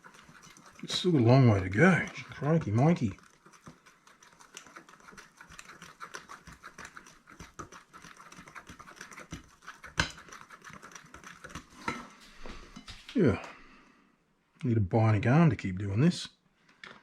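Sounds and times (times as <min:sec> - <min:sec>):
whisk clicking against bowl: 0:00.0 - 0:12.1.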